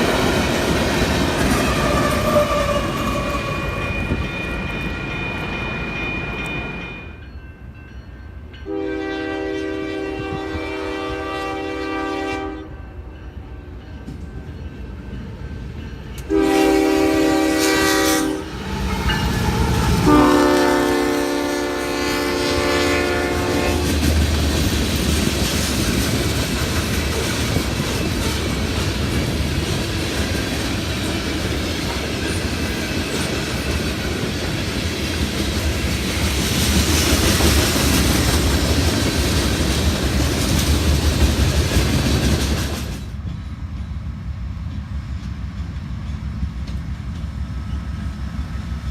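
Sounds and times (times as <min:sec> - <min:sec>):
train rumbling by: 0:00.0 - 0:48.9
locomotive horn blasts: 0:08.6 - 0:12.8, 0:16.3 - 0:18.6, 0:19.9 - 0:24.0.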